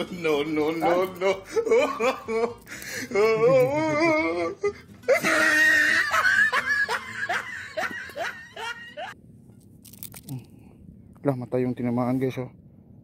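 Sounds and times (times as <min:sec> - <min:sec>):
man laughing excitedly: 0:00.0 - 0:09.2.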